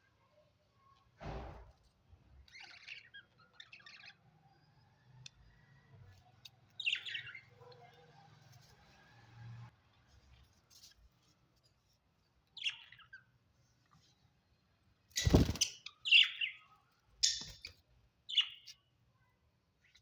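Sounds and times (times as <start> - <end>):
loud thump: 1.2 - 1.7
budgerigars chirping: 15.2 - 16.6.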